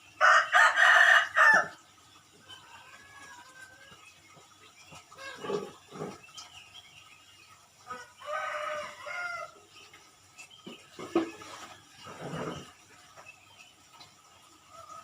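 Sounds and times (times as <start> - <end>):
rooster crowing: 0.2 - 1.7, 7.9 - 9.6.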